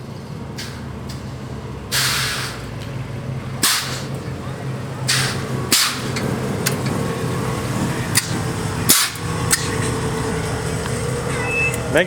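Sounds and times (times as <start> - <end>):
truck engine idling: 0.0 - 12.0
air suspension hissing: 1.9 - 2.8, 3.6 - 10.0.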